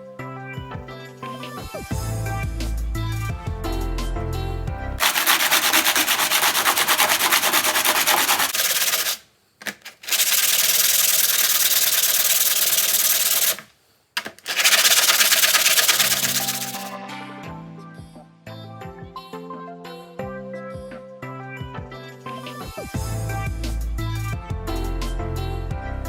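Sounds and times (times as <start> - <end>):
music: 0.0 - 5.0, 16.9 - 26.0
power tool grinding rusty metal: 5.0 - 13.6.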